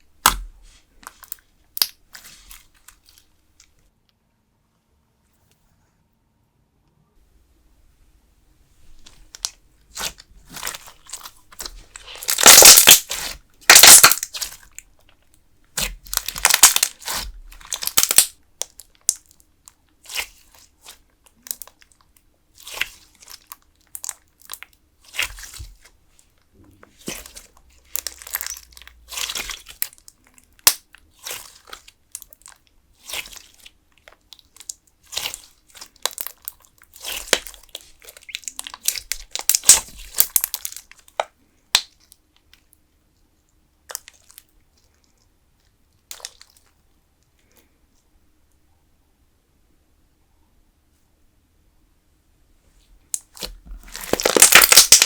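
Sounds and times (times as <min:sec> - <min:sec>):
slime squeezed and stretched: 0:00.2 - 0:03.2, 0:09.0 - 0:14.8, 0:15.8 - 0:19.2, 0:22.6 - 0:25.9, 0:26.9 - 0:42.0, 0:53.2 - 0:55.0.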